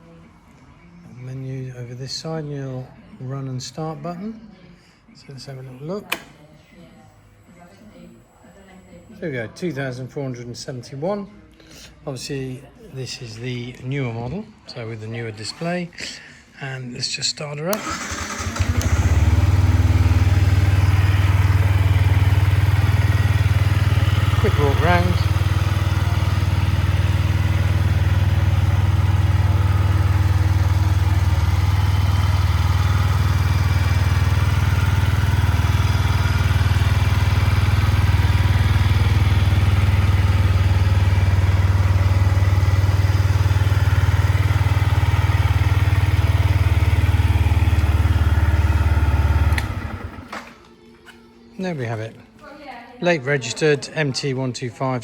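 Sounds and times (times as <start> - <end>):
motorcycle engine idling: 17.8 - 50.3.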